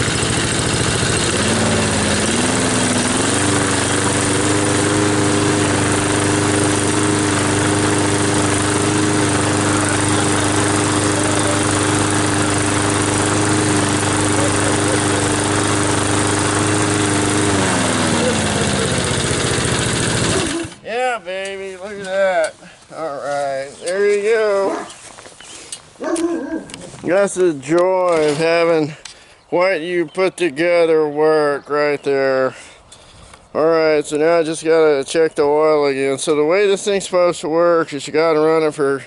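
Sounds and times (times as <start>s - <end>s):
lawn mower engine running: 0.0s - 21.1s.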